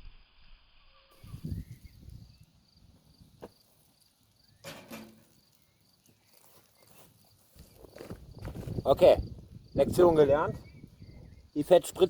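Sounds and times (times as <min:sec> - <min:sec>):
insect chirping: 0:00.0 - 0:12.0
wind rumble on microphone: 0:01.2 - 0:03.5, 0:08.0 - 0:12.0.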